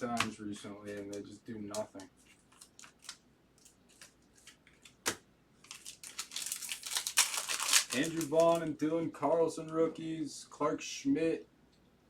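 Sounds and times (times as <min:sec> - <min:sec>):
cards rustling: 0:00.0 - 0:08.7.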